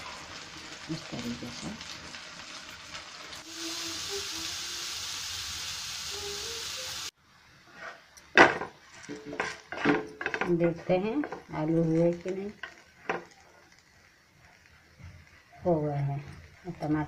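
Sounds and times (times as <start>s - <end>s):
potato slices sizzling in oil: 0.0s - 17.0s
wooden spatula knocking in pan: 8.4s - 11.5s.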